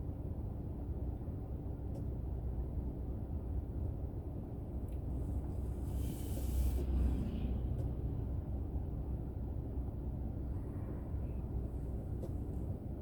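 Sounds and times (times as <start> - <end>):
car road and engine rumble: 0.0 - 13.0
brief hiss: 5.9 - 6.9.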